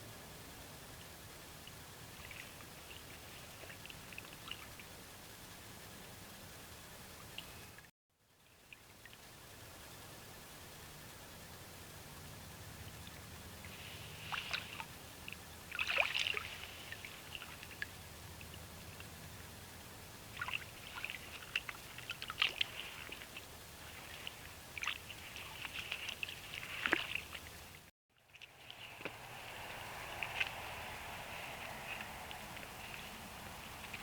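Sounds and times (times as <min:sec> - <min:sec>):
water splashing and sloshing: 0:01.0 - 0:05.2, 0:13.0 - 0:19.2, 0:20.0 - 0:34.0.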